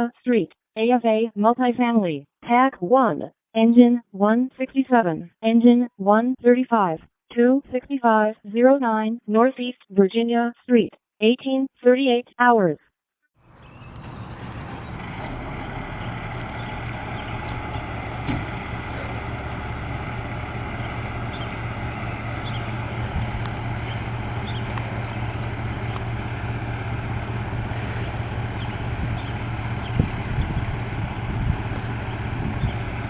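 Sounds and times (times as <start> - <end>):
vehicle engine droning: 13.4 - 33.0
faint light ticks and chirps: 13.6 - 19.5, 20.7 - 26.2.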